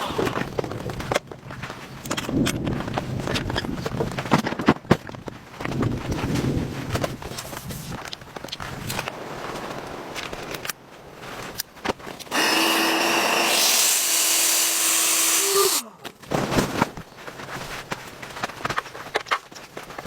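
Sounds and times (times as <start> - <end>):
power tool motor whining: 12.3 - 15.9.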